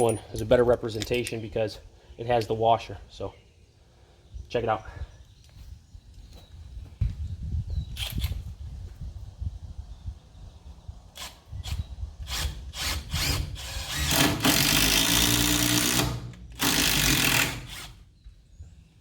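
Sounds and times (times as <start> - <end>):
power drill driving bolt into wood: 11.2 - 18.0.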